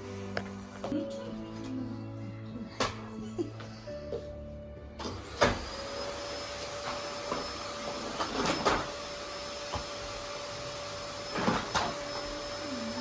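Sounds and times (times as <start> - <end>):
vacuum cleaner humming: 5.0 - 13.0.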